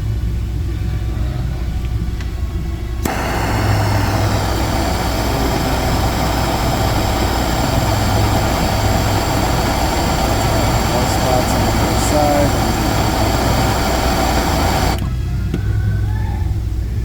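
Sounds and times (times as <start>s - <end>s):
loud rush of air: 3.0s - 15.1s
hot-air welder humming: 3.0s - 15.2s.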